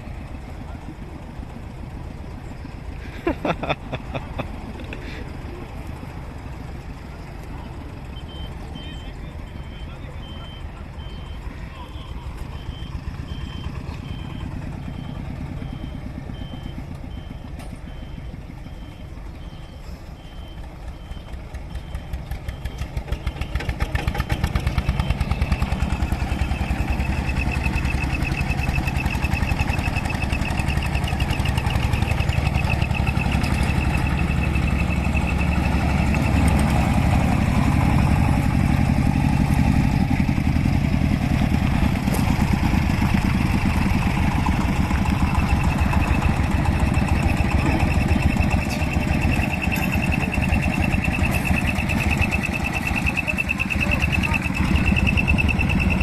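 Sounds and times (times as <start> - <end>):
vintage engine running: 0.0 - 56.0
high repeating beep: 8.2 - 11.4, 12.0 - 22.8, 43.4 - 56.0.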